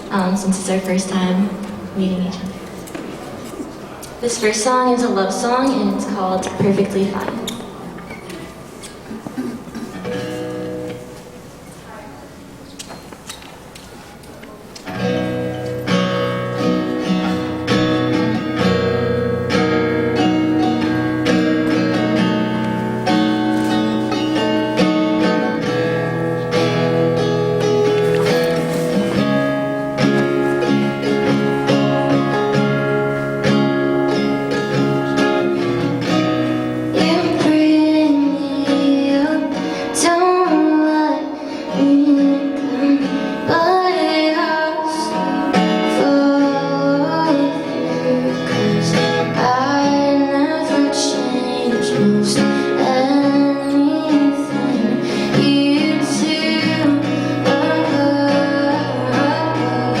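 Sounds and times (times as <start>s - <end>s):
acoustic guitar: 0.0s - 60.0s
woman singing: 36.9s - 60.0s.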